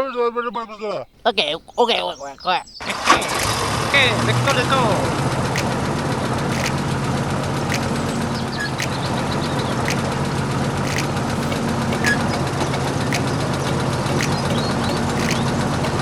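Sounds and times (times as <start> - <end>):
engine idling: 2.9 - 16.0
short sharp tick: 3.4 - 3.6, 5.6 - 5.8, 6.5 - 6.8, 8.8 - 9.2, 10.9 - 16.0.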